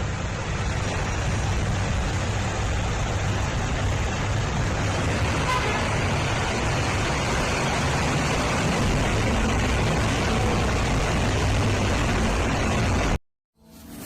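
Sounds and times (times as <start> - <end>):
low rumble of vehicle engines: 0.0 - 13.2
rushing floodwater: 0.0 - 13.2.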